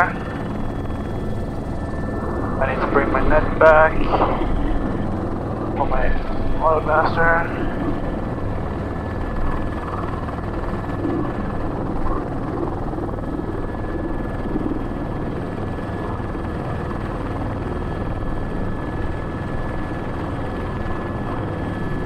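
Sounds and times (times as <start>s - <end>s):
high whine: 0.0s - 16.4s
helicopter rotor and engine: 0.0s - 22.0s.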